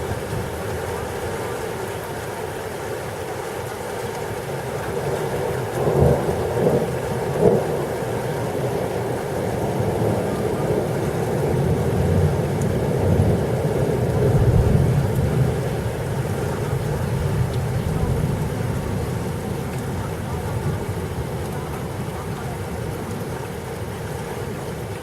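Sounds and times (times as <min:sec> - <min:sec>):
rain falling: 0:00.0 - 0:25.0
thunder rumble: 0:09.5 - 0:22.0.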